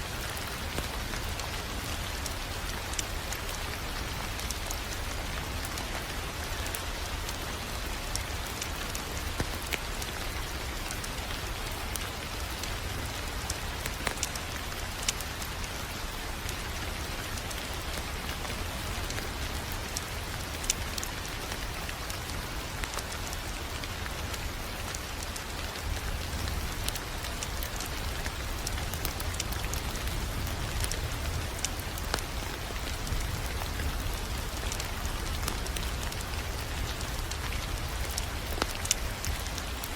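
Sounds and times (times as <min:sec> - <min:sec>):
wood fire crackling: 0:00.1 - 0:39.9.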